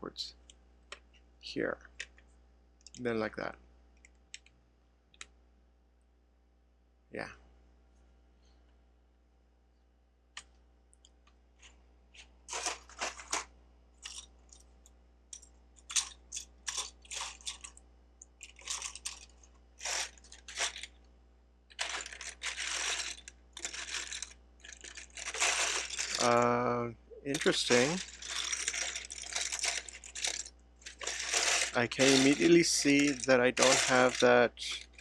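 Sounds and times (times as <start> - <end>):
plastic bricks clattering: 12.5 - 14.3, 15.8 - 17.8, 18.4 - 21.0, 21.7 - 26.5, 27.3 - 35.0.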